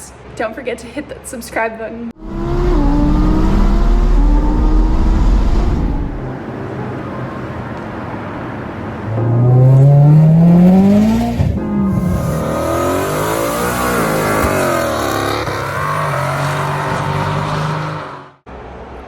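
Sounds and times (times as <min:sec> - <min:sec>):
vehicle engine accelerating: 0:02.2 - 0:06.4, 0:08.8 - 0:18.4.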